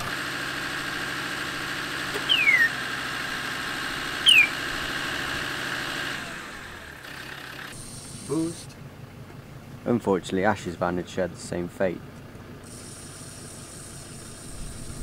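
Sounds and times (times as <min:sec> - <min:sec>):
vehicle engine idling: 0:00.0 - 0:15.0
short falling whistles: 0:02.2 - 0:02.8, 0:04.2 - 0:04.6.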